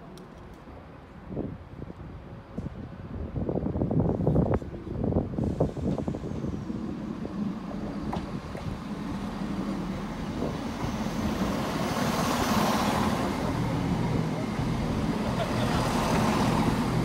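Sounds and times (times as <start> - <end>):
diesel train rumble: 0.7 - 17.0
wheels hissing on rail: 5.2 - 17.0.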